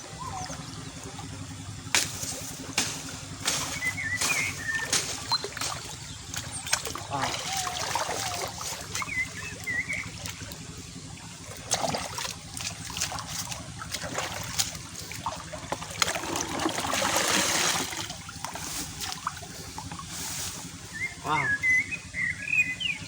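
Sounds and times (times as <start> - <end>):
shallow water splashing: 0.0 - 21.1.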